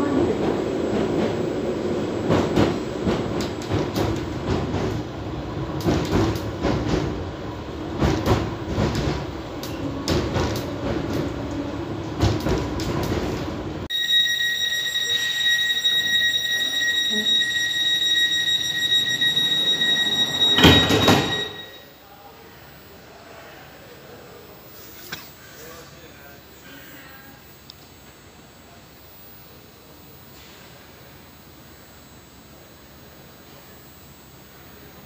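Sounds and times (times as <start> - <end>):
steady high tone: 13.9 - 22.3.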